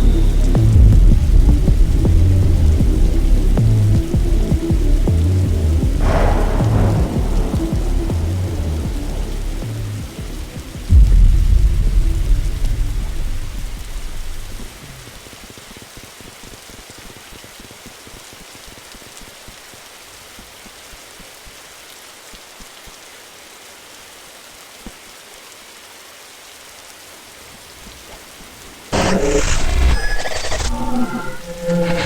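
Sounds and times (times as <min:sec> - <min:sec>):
loud deep sound: 0:00.0 - 0:14.9, 0:29.0 - 0:32.0
steady rain hiss: 0:00.0 - 0:32.0.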